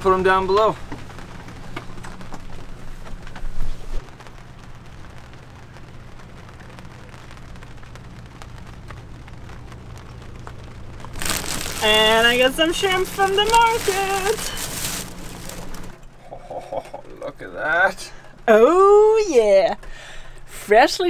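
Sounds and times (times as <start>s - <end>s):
rain pattering on boat deck: 0.0s - 21.0s
low rumble: 3.4s - 17.0s.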